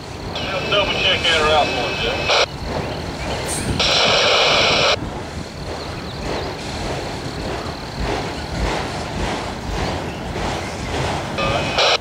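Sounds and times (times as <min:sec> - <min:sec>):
freight cars rolling on rails: 0:00.0 - 0:12.0
radio static burst: 0:00.3 - 0:02.5, 0:03.7 - 0:05.0, 0:11.4 - 0:12.0.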